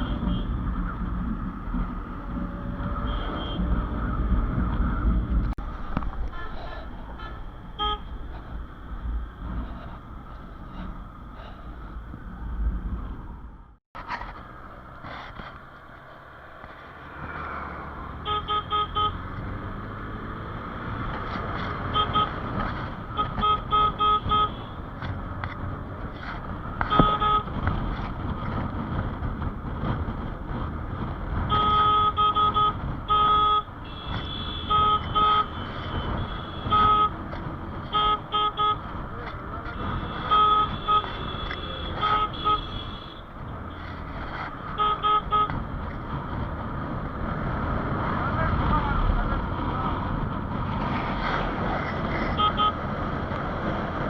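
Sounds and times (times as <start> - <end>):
vehicle horn beeping: 0.0 - 0.5, 3.0 - 3.8, 6.3 - 8.1, 18.2 - 19.3, 21.8 - 22.5, 23.1 - 24.8, 26.8 - 27.5, 31.5 - 37.2, 37.8 - 38.9, 39.6 - 43.9, 44.6 - 45.6, 52.3 - 52.8
engine and road noise: 0.0 - 54.0.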